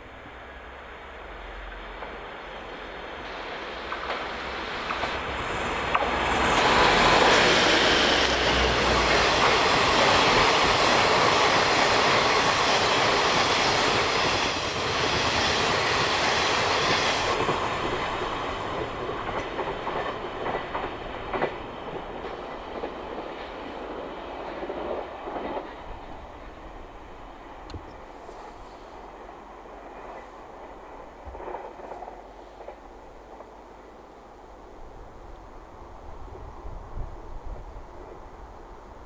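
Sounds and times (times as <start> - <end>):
train passing at speed: 0.0 - 39.0
wheels clattering over rail joints: 3.7 - 12.6.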